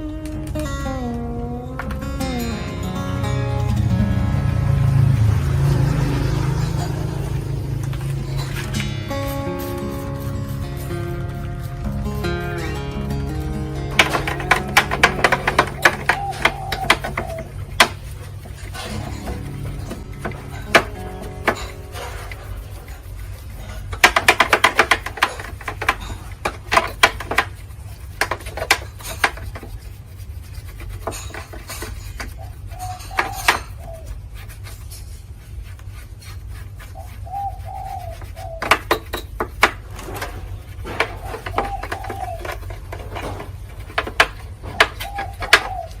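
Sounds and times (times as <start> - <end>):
dove cooing: 13.4 - 25.3, 32.3 - 34.2, 36.9 - 46.0
hand tool clicks and knocks: 13.9 - 22.4, 23.9 - 27.6.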